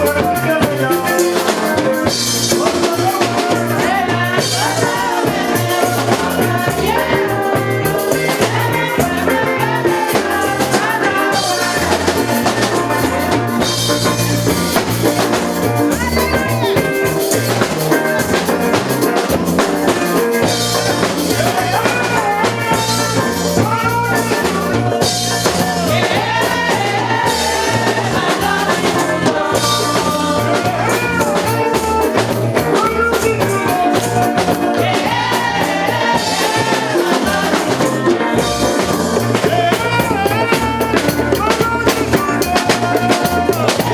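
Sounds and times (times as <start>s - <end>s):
person singing: 0.0s - 13.7s, 20.2s - 43.9s
drum kit and bass beat: 0.0s - 43.9s.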